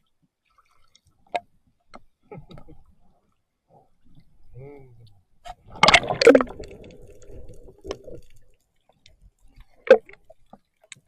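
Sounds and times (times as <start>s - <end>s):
water splashing: 5.6s - 8.6s
water trickling: 5.8s - 11.0s.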